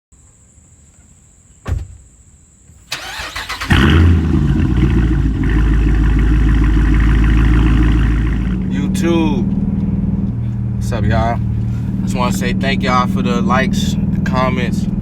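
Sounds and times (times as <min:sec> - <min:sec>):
thump: 0:01.6 - 0:02.1
starter cranking: 0:02.9 - 0:08.6
car engine idling loudly: 0:03.0 - 0:15.0.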